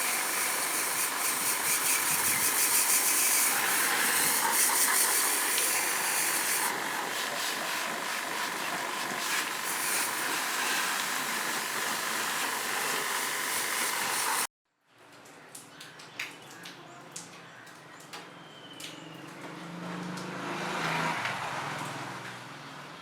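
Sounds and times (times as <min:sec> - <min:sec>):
pressure washer spray hiss: 0:00.0 - 0:14.5
pump motor running: 0:00.0 - 0:14.5.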